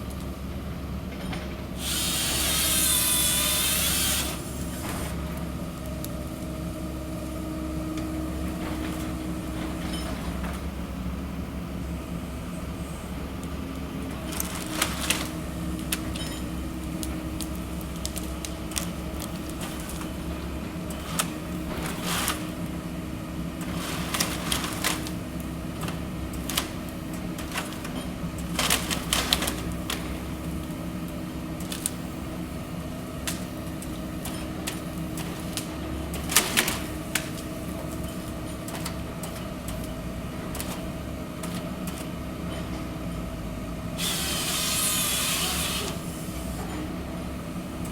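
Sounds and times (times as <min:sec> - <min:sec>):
harvester engine running: 0:00.0 - 0:47.9.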